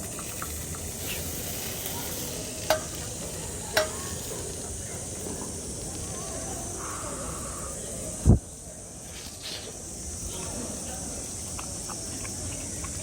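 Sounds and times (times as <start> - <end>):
food sizzling in a frying pan: 0.0 - 6.3.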